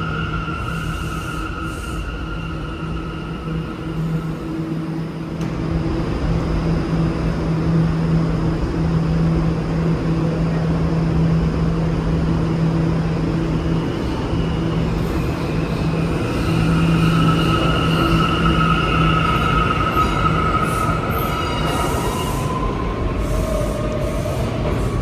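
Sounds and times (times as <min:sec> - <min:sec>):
subway train rumbling: 0:00.0 - 0:25.0
high-pitched wheel squeal: 0:14.6 - 0:24.4.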